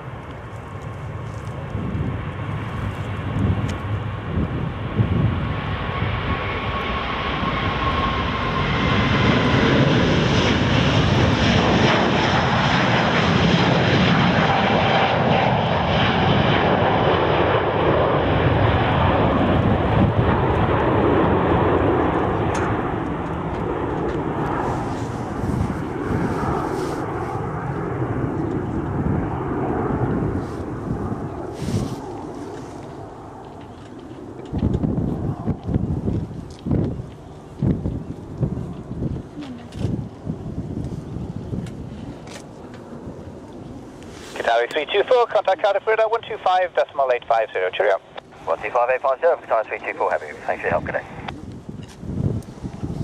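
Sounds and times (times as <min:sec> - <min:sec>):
jet engines roaring at takeoff: 0:00.0 - 0:53.0.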